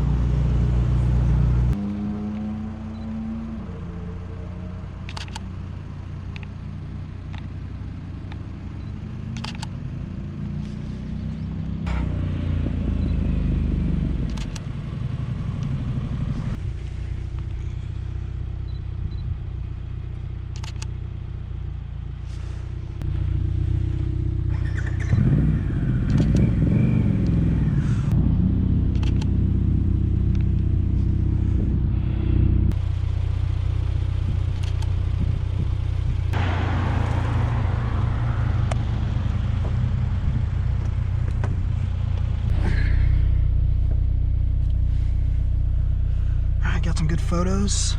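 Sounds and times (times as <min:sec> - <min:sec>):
cars driving past: 0:36.3 - 0:47.9.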